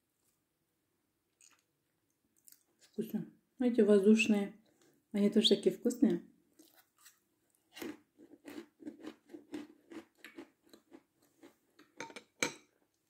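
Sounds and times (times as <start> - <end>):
chewing crisp meringue: 1.4 - 1.7, 2.4 - 2.9, 6.6 - 12.0.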